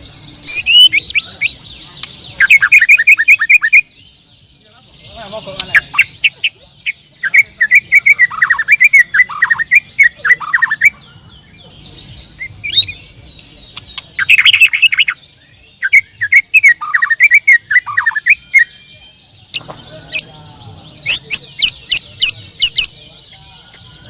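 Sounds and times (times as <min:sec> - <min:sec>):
songbird singing whistles: 0:00.0 - 0:04.2, 0:07.2 - 0:11.0, 0:12.2 - 0:20.3.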